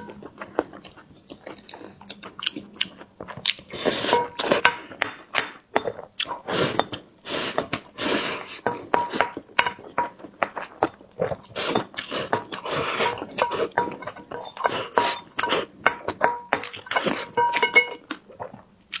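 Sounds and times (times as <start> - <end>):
wet chewing and mouth smacks: 0.0 - 4.6, 8.6 - 19.0.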